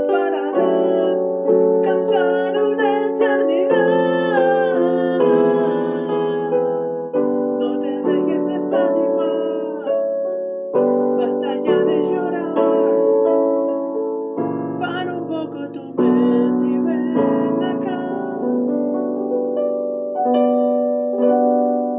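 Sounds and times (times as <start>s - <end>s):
piano and keyboard chords: 0.0s - 21.9s.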